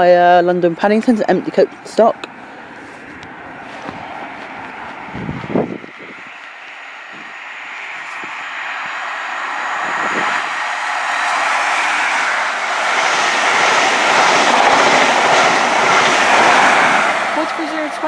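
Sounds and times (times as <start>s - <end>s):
diesel train passing: 0.0s - 18.0s.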